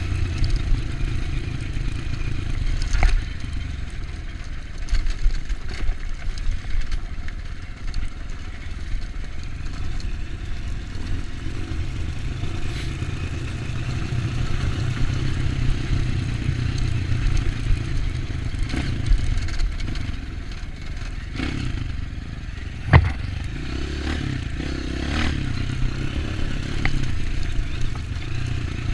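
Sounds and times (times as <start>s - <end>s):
motorcycle engine running: 0.0s - 28.9s
bike clattering over rough ground: 22.8s - 23.4s
sharp loud knock: 22.9s - 23.3s.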